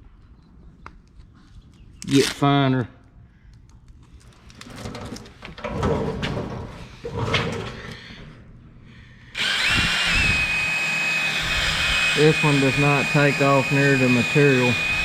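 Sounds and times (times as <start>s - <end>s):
clicks and rustling of hands: 3.0s - 5.2s
drill whining: 9.3s - 15.0s.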